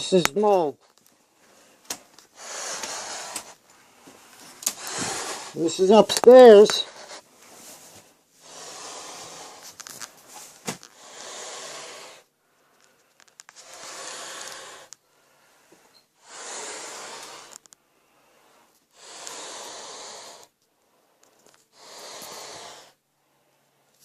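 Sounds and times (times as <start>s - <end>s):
heavy slow breathing: 1.2s - 5.8s, 6.7s - 24.0s.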